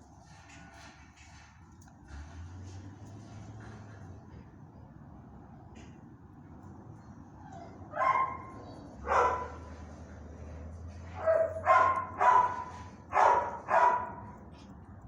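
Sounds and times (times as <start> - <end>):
dog barking: 7.9 - 9.8, 11.1 - 14.4.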